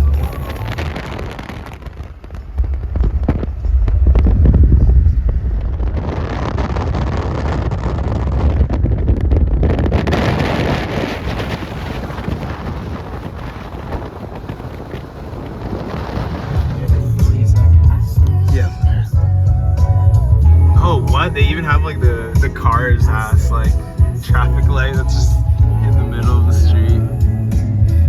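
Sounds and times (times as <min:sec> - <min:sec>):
road rumble: 0:00.0 - 0:28.0
wind buffeting microphone: 0:00.0 - 0:28.0.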